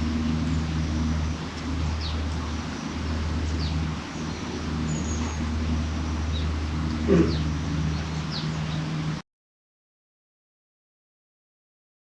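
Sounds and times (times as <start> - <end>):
low motor hum: 0.0 - 9.2
bird chirps: 1.8 - 9.0.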